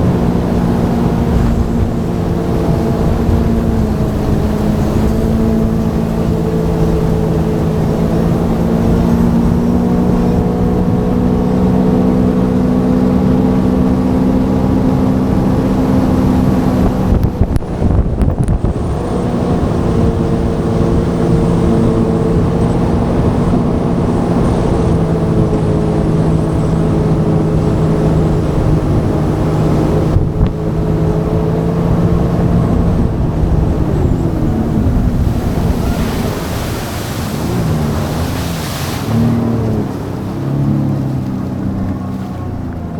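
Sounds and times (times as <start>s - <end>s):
jet ski engine running: 0.0s - 42.9s
water rushing past: 0.0s - 42.9s
wind rushing: 32.0s - 41.3s.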